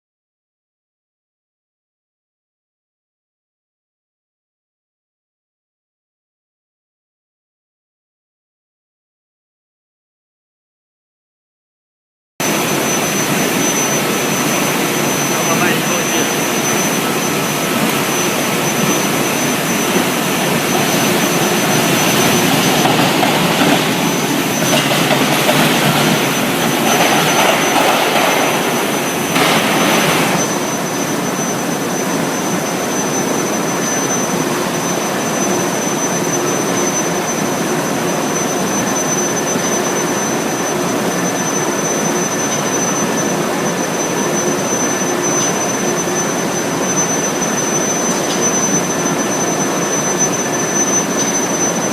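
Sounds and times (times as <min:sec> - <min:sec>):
furnace rushing noise: 0:12.4 - 0:31.0
high-pitched whine: 0:12.4 - 0:51.9.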